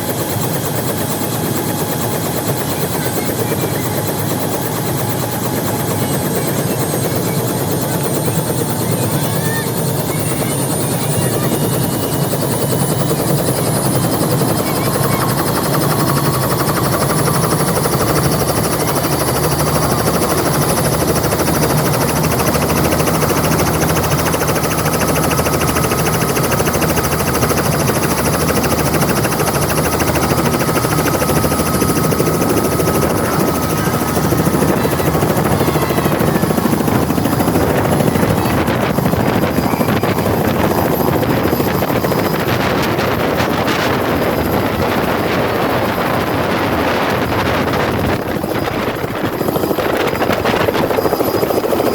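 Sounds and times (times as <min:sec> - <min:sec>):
helicopter rotor and engine: 0:00.0 - 0:51.9.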